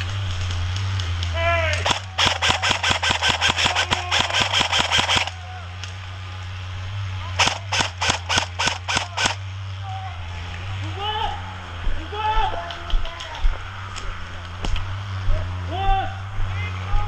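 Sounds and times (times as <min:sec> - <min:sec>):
airsoft rifle firing bursts: 0:01.8 - 0:05.4, 0:07.4 - 0:09.4.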